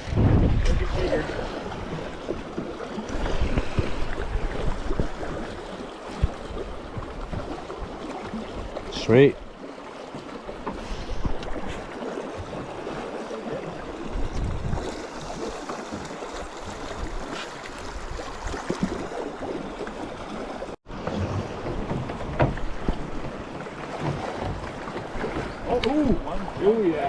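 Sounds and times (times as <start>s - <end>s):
wind buffeting microphone: 0.0s - 5.6s, 13.8s - 15.6s
river water rushing and lapping: 0.0s - 27.0s
low knocks: 20.9s - 25.7s.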